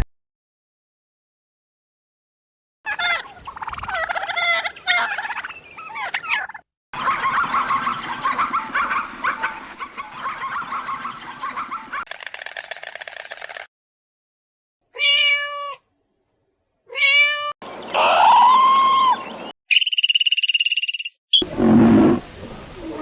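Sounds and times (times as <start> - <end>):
poultry calling: 2.9 - 6.6, 21.4 - 23.0
chatter of many birds: 2.9 - 12.0, 21.4 - 23.0.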